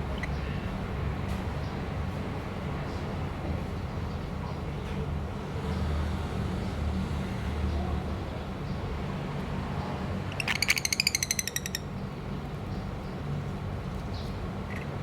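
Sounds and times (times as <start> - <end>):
lovebird chattering trill: 10.3 - 11.9.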